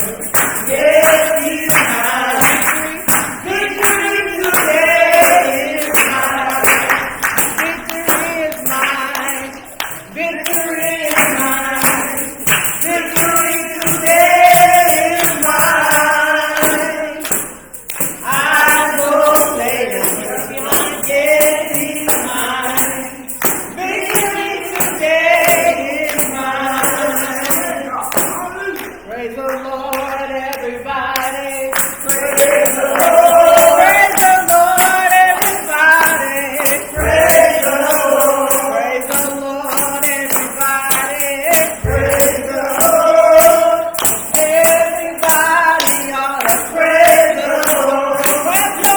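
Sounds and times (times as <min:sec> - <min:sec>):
group gospel singing: 0:00.0 - 0:48.9
tambourine shaken in a beat: 0:00.0 - 0:48.9.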